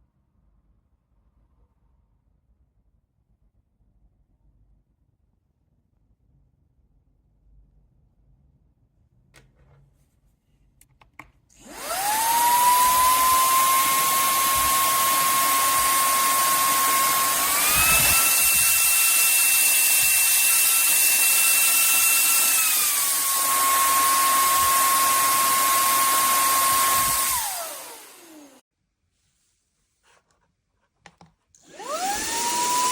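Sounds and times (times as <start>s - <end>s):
handheld vacuum cleaner whining: 11.5s - 28.6s, 31.6s - 32.9s.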